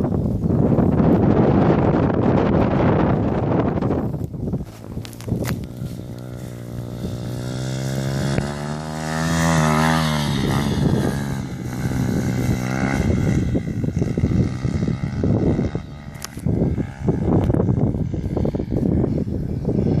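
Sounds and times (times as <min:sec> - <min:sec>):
motorcycle engine revving: 0:00.9 - 0:20.0.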